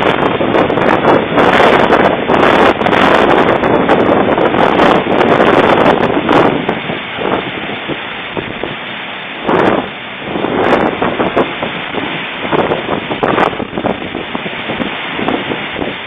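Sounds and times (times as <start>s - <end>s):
heavy rain hissing: 0.0s - 16.0s
wind gusts buffeting microphone: 0.0s - 16.0s.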